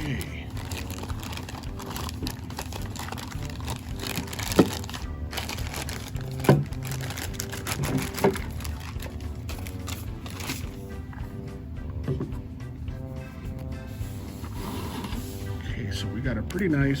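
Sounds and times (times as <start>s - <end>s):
cardboard packaging crinkling: 0.0s - 10.9s.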